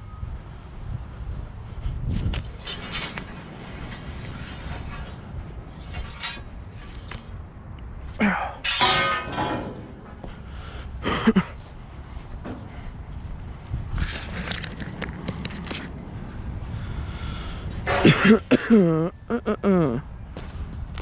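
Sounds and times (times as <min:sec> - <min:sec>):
heavy metal clanging: 0:02.3 - 0:12.9, 0:17.8 - 0:18.6.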